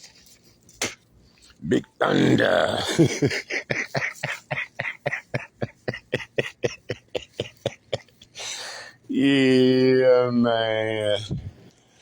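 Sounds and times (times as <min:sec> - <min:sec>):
man laughing breathily: 0:02.8 - 0:08.5.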